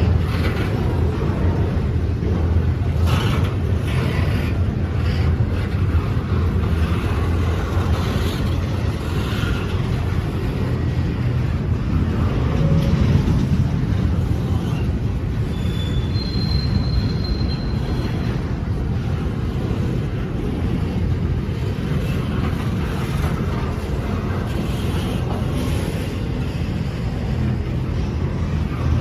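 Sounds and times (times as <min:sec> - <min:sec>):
train wheels rumbling on rail: 0:00.0 - 0:29.0
high wheel squeal: 0:14.5 - 0:18.5.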